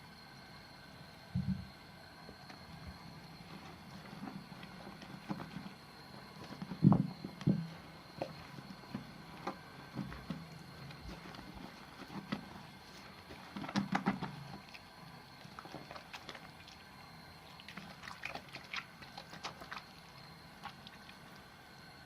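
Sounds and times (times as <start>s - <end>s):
soap lather squelching: 10.2s - 21.5s.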